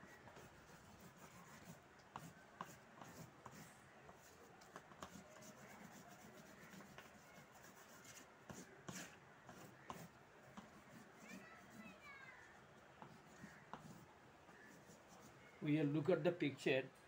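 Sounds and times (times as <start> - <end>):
paintbrush strokes on paper: 0.0 - 15.6.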